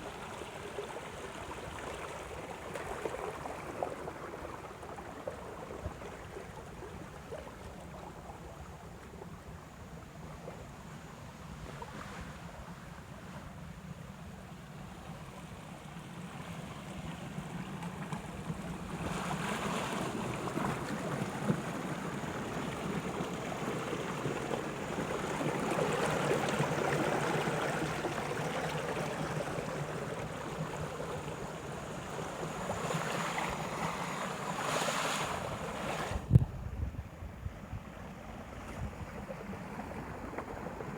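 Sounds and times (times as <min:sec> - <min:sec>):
water washing in surges: 0:17.9 - 0:36.3.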